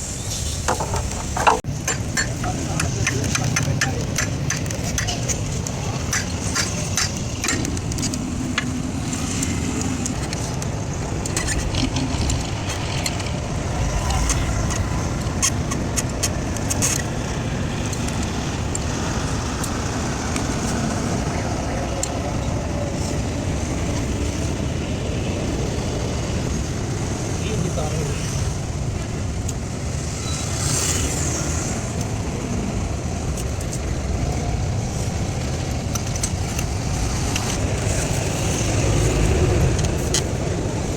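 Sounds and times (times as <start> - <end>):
vehicle engine rumble: 0.0 - 40.9
sharp clicks and rattles: 0.6 - 20.7.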